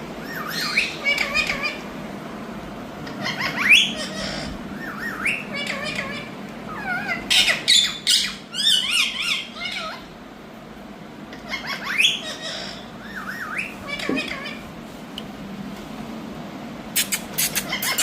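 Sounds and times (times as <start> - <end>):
parakeet squawking and chirping: 0.2 - 1.8, 3.0 - 10.2, 11.3 - 14.7, 17.0 - 18.0.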